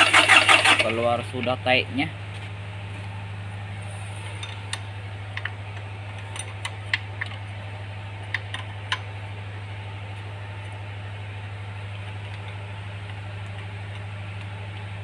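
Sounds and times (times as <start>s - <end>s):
tractor diesel engine idling: 0.0s - 1.9s.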